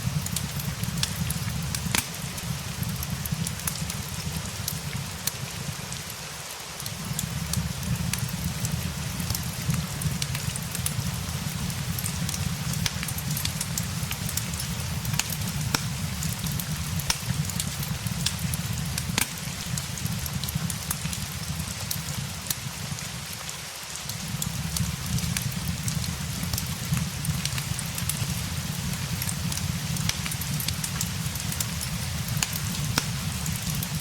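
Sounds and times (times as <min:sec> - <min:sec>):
fireplace crackling and popping: 0:00.0 - 0:34.0
steady rain hiss: 0:00.0 - 0:34.0.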